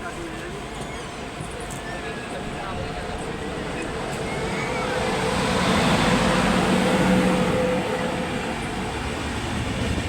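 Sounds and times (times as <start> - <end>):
train rumbling past: 2.6 - 10.0.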